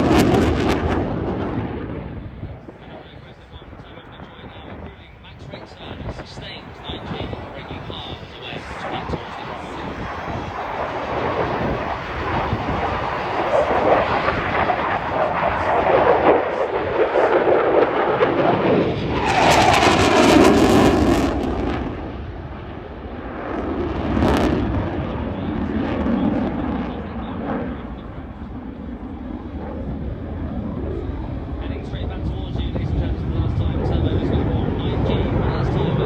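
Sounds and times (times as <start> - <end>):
falling jet whine: 0.0 - 2.3, 5.6 - 36.0
jet flying past: 0.0 - 36.0.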